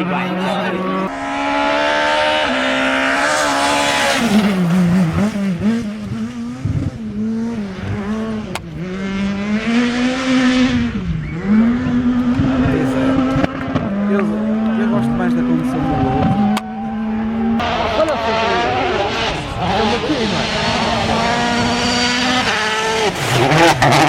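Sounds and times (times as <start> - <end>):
rally car engine revving: 0.0 - 24.0.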